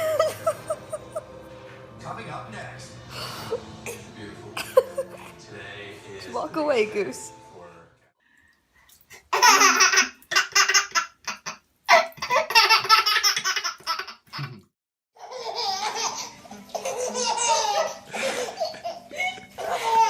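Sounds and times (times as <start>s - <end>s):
high-pitched laughter: 0.0s - 1.2s.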